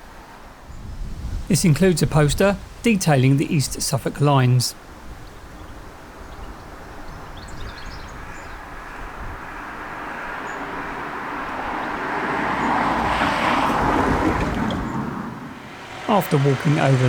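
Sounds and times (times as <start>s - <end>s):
car passing by: 6.7s - 17.0s.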